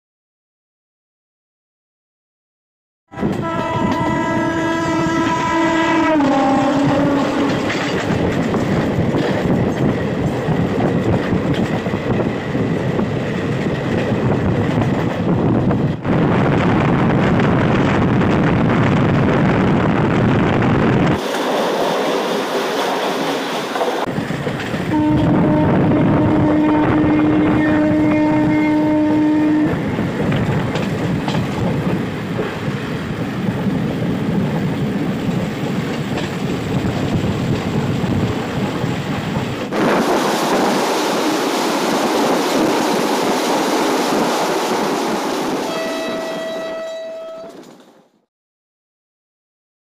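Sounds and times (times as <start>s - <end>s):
train horn blast: 3.1s - 7.8s, 24.9s - 29.8s, 45.7s - 47.6s
train wheels rumbling on rails: 3.1s - 48.2s.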